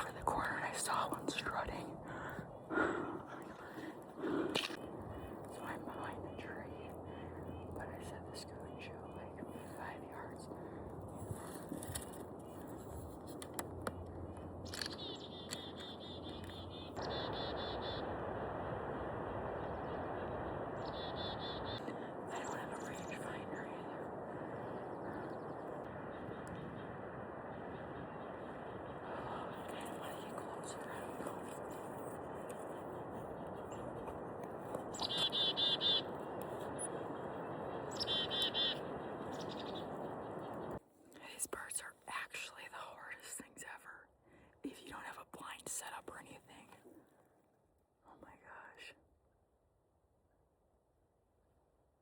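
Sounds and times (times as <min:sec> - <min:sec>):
outdoor rustle: 0:00.0 - 0:17.1
songbird chirping: 0:13.8 - 0:18.2, 0:19.5 - 0:44.0
steady rushing noise: 0:17.2 - 0:35.1.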